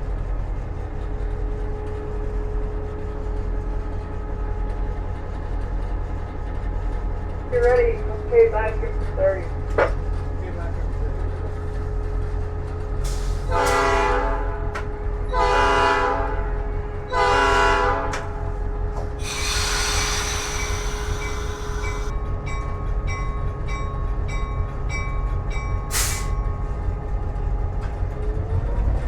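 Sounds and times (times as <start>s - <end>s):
locomotive air horn blasts: 13.5s - 18.4s, 19.2s - 22.0s
diesel engine idling: 19.1s - 22.1s
air hiss: 19.2s - 22.1s, 25.9s - 26.4s
locomotive bell ringing: 19.7s - 26.0s.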